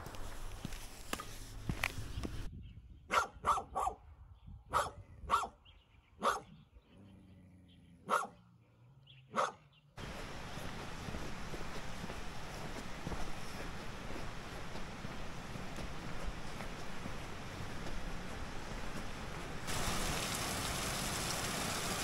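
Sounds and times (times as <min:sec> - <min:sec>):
dog barking: 0:03.1 - 0:04.0, 0:04.7 - 0:05.6, 0:06.2 - 0:06.6, 0:08.0 - 0:08.5, 0:09.3 - 0:09.7.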